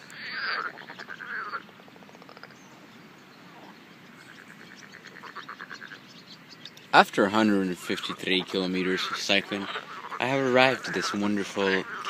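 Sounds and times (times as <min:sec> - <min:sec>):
frogs croaking: 0:00.0 - 0:12.0.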